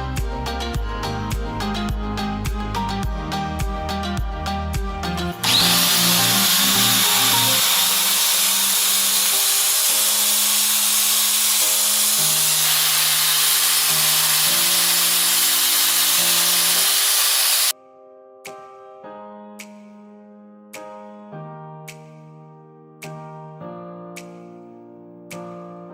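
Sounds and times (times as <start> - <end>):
piano music: 0.0 - 25.9
sharpening machine grinding hiss: 5.4 - 17.7.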